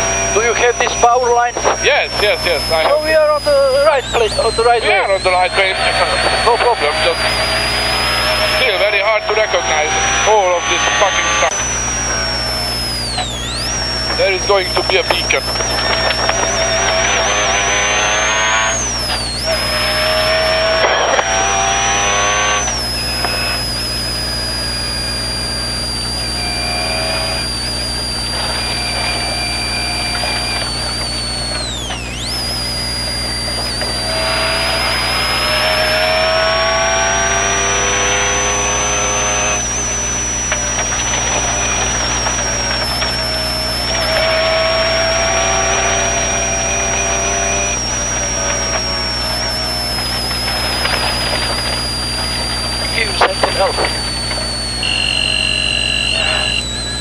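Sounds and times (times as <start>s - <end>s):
steady high whine: 0.0s - 57.0s
car engine revving: 15.1s - 24.6s, 32.2s - 53.2s.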